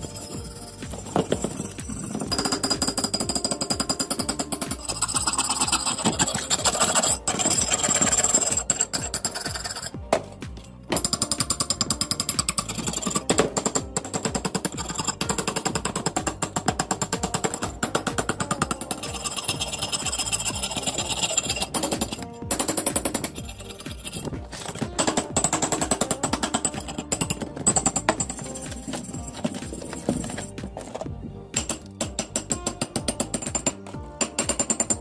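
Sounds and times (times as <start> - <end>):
wire brush scrubbing rusty metal: 3.6 - 9.9, 18.4 - 31.0.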